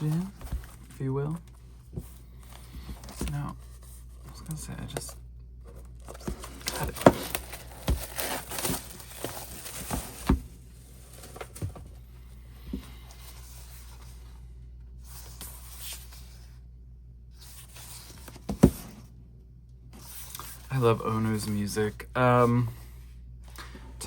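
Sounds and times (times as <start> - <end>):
cardboard tearing and rustling: 5.6 - 11.8.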